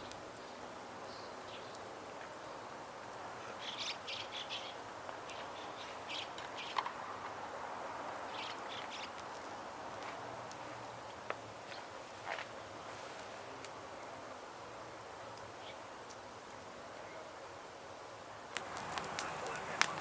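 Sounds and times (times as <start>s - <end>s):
outdoor background hiss: 0.0s - 20.0s
small bird chirping: 3.5s - 6.9s, 8.3s - 9.2s.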